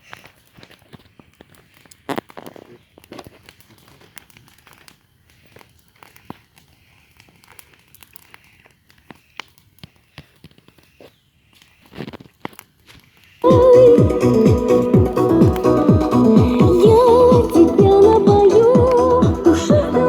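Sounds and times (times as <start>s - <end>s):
campfire crackling and popping: 0.0s - 20.0s
loud crunching: 13.4s - 20.0s.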